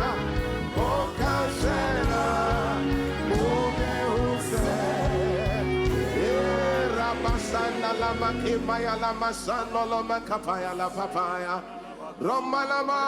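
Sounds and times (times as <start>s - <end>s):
bass line: 0.0s - 11.4s
keyboard chords: 0.0s - 12.6s.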